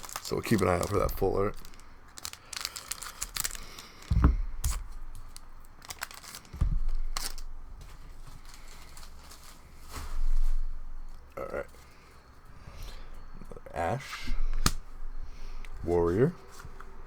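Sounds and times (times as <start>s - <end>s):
cards being handled: 0.0s - 7.5s
foil pack tearing: 0.0s - 10.4s
wrapper crinkling: 0.0s - 10.8s.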